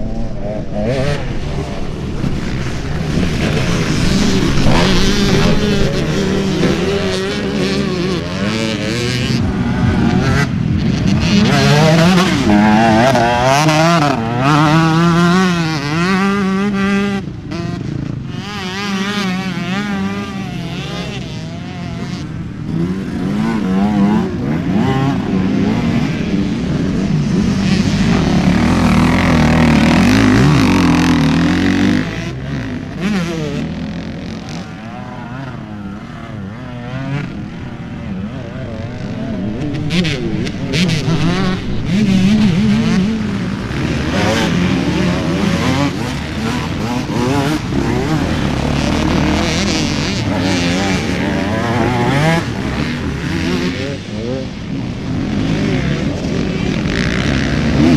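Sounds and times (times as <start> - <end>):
rushing noise: 0.0 - 13.3
motorcycle engine revving: 0.0 - 57.9.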